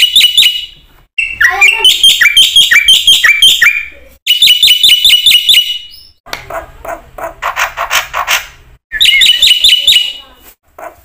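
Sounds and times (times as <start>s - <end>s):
bird chirping: 0.0s - 6.2s, 7.5s - 10.4s
harsh rasping bird calls: 7.4s - 11.0s.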